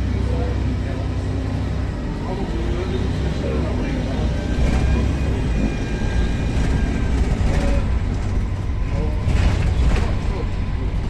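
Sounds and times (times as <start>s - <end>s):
bus engine droning: 0.0s - 11.0s.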